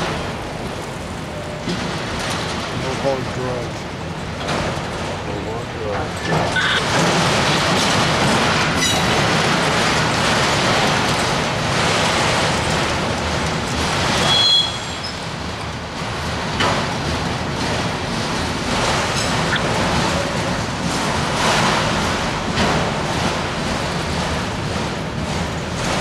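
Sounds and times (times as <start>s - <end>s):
freight train wheels rumbling: 0.0s - 26.0s
train wheel squeal: 8.8s - 9.1s, 14.2s - 15.2s.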